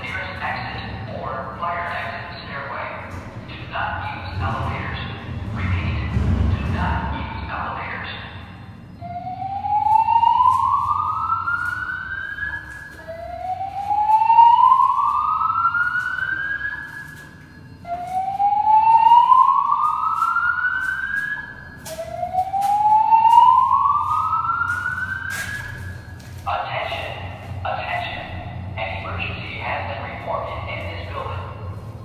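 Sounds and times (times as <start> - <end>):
recorded voice announcements: 0.0 - 32.0
fire alarm rising whoop: 9.0 - 26.4.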